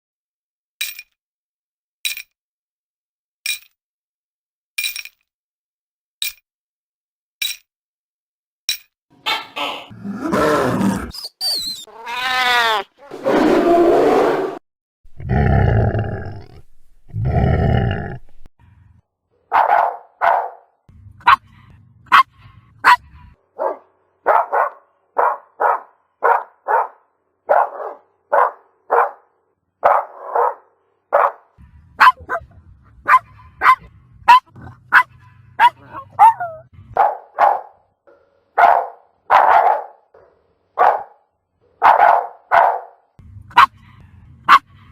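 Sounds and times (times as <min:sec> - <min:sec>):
dog barking: 0:19.5 - 0:37.8, 0:38.6 - 0:40.2, 0:40.8 - 0:41.2, 0:41.8 - 0:43.8, 0:44.5 - 0:44.7.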